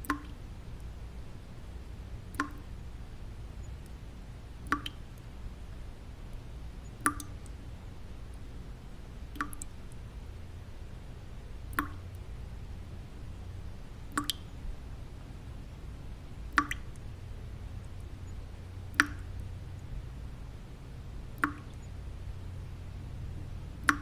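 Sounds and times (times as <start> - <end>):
water drops plinking into water: 0.0 - 0.4, 2.3 - 2.7, 4.6 - 5.3, 6.3 - 7.6, 9.3 - 10.0, 11.7 - 12.2, 14.1 - 14.6, 16.5 - 17.2, 17.8 - 19.9, 21.4 - 21.9, 23.8 - 24.0
low white noise: 0.0 - 24.0.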